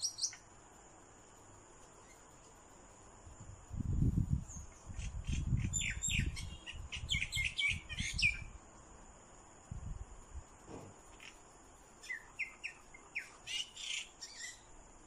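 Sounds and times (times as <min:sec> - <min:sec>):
birds chirping: 0:00.0 - 0:00.5, 0:04.5 - 0:08.6, 0:11.1 - 0:14.7.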